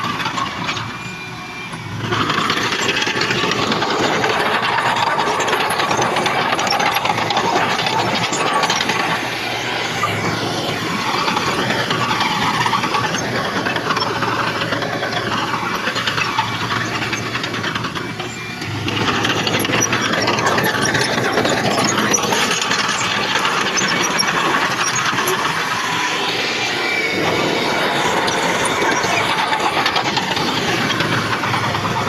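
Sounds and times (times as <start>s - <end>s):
heavy diesel machinery engine: 0.0s - 32.0s
metallic clatter: 2.1s - 26.1s.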